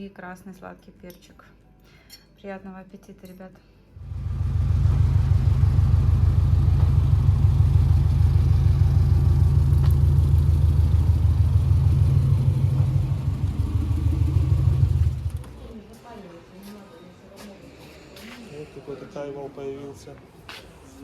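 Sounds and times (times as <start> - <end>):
car engine and road rumble: 4.0 - 15.8.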